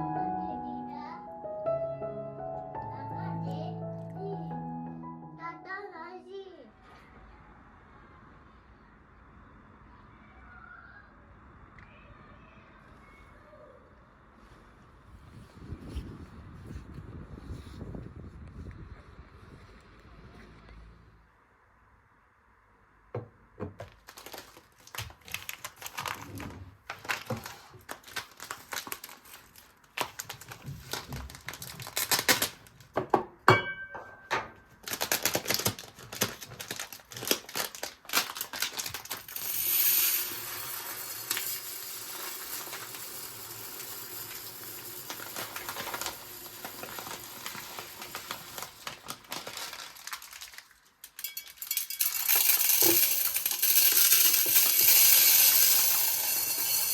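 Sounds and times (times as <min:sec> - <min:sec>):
kitchen items clicking and clattering: 0:23.2 - 0:56.9.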